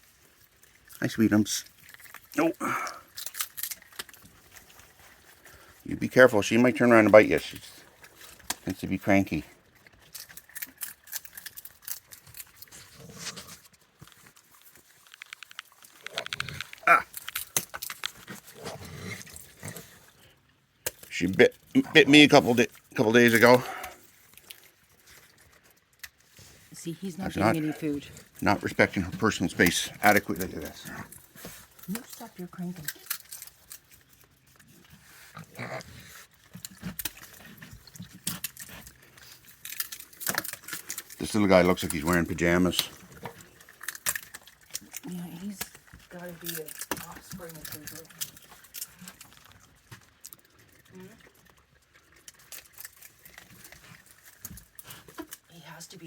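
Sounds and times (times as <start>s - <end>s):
raccoons growling and chittering: 0.6s - 13.7s, 15.2s - 25.6s, 26.2s - 56.0s
low animal sounds: 16.0s - 17.2s.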